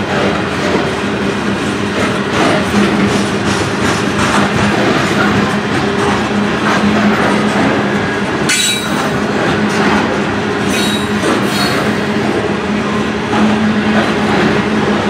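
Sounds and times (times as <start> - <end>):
steel wheels rumbling on rail: 0.0 - 15.0
high-pitched wheel squeals: 8.5 - 9.1, 10.7 - 12.0.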